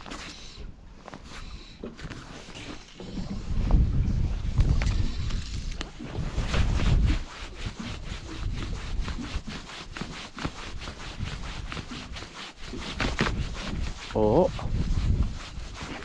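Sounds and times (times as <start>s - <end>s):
wind buffeting microphone: 3.1s - 9.6s, 13.0s - 16.0s
fishing line rasping: 4.8s - 16.0s.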